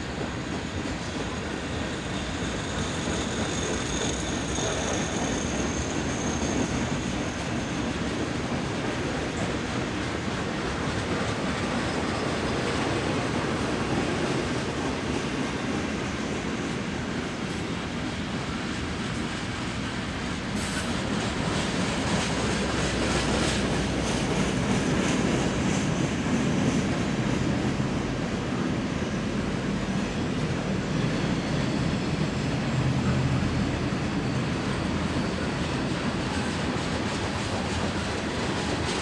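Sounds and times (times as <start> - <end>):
railroad cars rumbling past: 0.0 - 39.0
high wheel squeal: 1.2 - 8.1, 20.6 - 21.2, 29.7 - 36.8.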